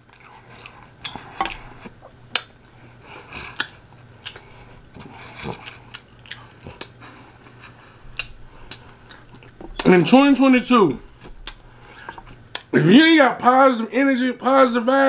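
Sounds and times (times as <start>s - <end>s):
person chewing and biting: 0.0s - 9.9s
wet mouth smacking: 0.6s - 9.9s, 11.2s - 12.7s.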